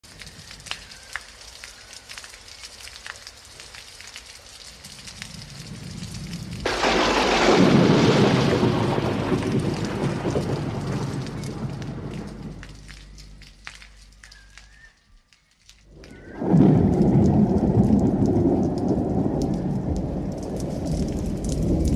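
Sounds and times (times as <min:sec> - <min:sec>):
steady rain: 0:00.0 - 0:21.9
thunder rumble: 0:04.9 - 0:14.2, 0:15.9 - 0:21.9
loud thunderclap: 0:05.8 - 0:13.1, 0:16.0 - 0:21.9.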